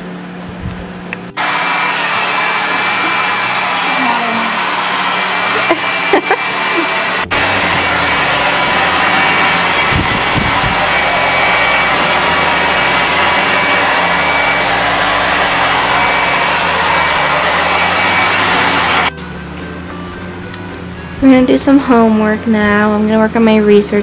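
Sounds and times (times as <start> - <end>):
loud rushing noise: 1.4 - 19.1.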